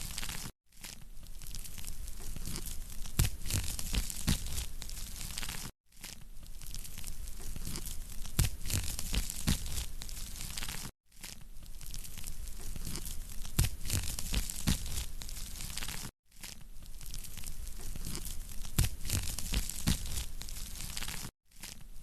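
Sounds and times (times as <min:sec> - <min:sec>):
wood fire crackling and popping: 0:01.8 - 0:05.7, 0:06.6 - 0:10.9, 0:11.8 - 0:16.1, 0:17.0 - 0:21.3.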